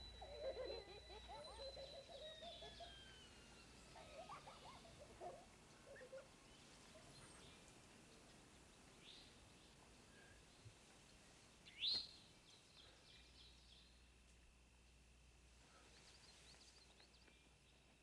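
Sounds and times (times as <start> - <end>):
high whistle-like falling tone: 0.0 - 4.7
faint bird calls and chirps: 0.0 - 14.1, 15.6 - 18.0.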